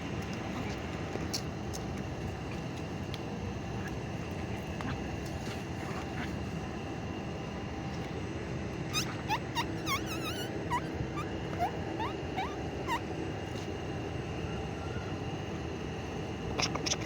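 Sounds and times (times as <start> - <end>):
low background hum: 0.0 - 17.0
animal chirping calls: 8.9 - 13.1.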